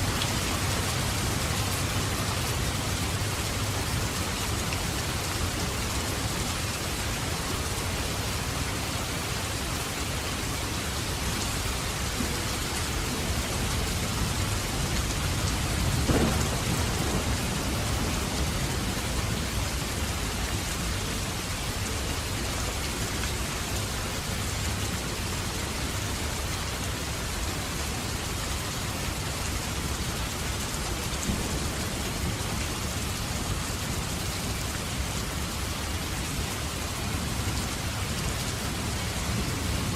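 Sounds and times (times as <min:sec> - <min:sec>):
heavy rain: 0:00.0 - 0:39.9
thunder rumbling: 0:13.2 - 0:20.3.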